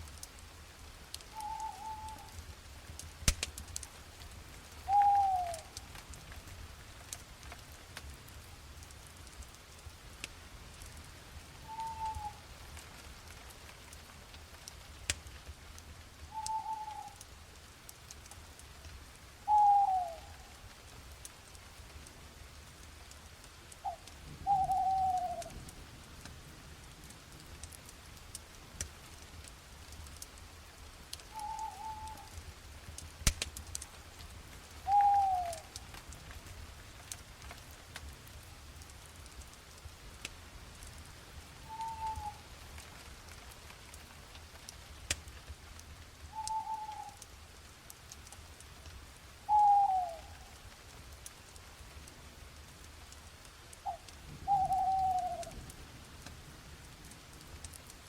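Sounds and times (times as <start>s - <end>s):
faint crackles: 0.0s - 58.0s
bird calling: 1.4s - 2.3s, 4.9s - 5.7s, 11.7s - 12.4s, 16.3s - 17.2s, 19.5s - 20.4s, 23.8s - 25.5s, 31.3s - 32.3s, 34.9s - 35.7s, 41.7s - 42.4s, 46.4s - 47.2s, 49.5s - 50.5s, 53.8s - 55.5s.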